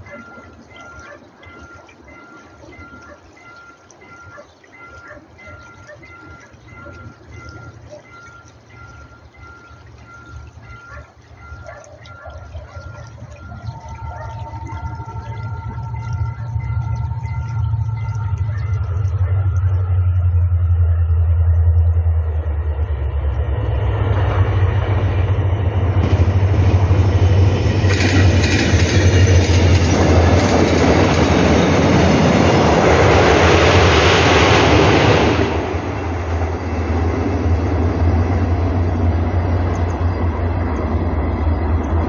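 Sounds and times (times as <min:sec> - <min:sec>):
passing train noise: 0:00.0 - 0:42.0
low rumble: 0:12.8 - 0:42.0
wheels clicking on rails: 0:25.9 - 0:42.0.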